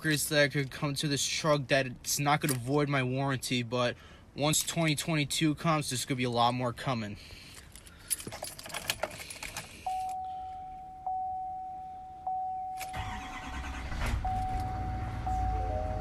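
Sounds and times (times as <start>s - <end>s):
light clicks and rustles: 7.4s - 10.2s
dashboard chime dinging: 9.9s - 12.9s
diesel engine cranking and starting: 12.8s - 16.0s.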